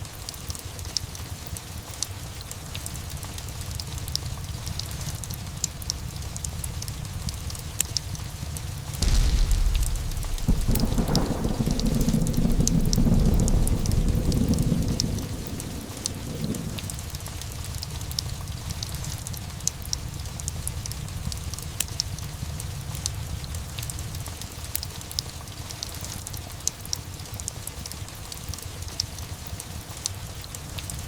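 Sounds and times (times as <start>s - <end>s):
steady rain: 0.0s - 31.0s
fireplace crackling: 3.6s - 18.4s
thunder rumble: 4.4s - 22.6s.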